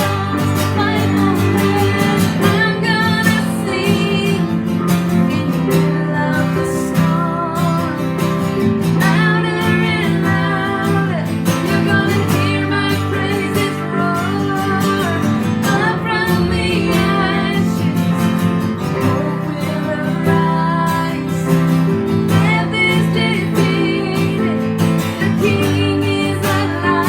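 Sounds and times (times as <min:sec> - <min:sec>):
person singing: 0:00.0 - 0:08.2, 0:08.9 - 0:27.0
strummed acoustic guitar: 0:00.0 - 0:27.0.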